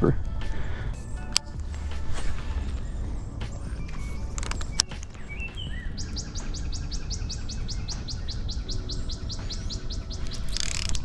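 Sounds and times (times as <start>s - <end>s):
steady low rumble: 0.0s - 10.4s
songbird trilling: 2.4s - 11.0s.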